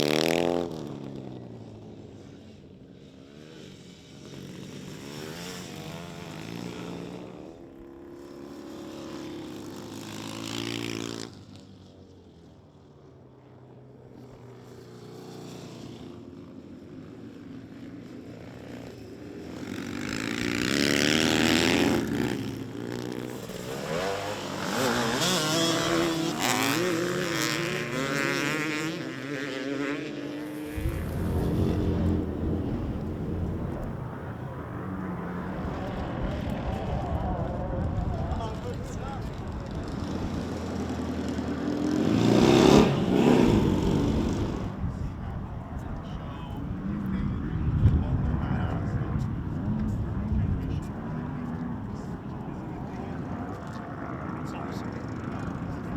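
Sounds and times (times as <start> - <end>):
motorcycles revving past: 0.0 - 11.9, 18.8 - 45.6.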